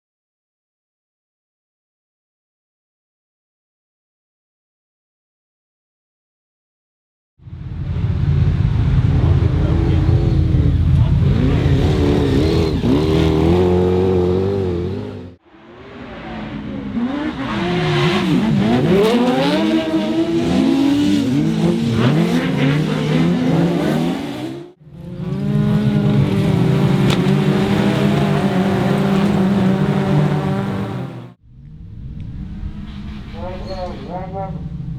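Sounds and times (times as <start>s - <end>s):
race car engines revving: 7.5s - 34.9s.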